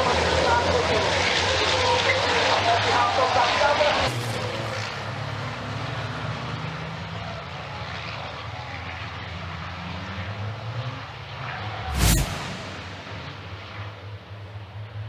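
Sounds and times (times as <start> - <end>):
distant engine drone: 11.7 - 15.0.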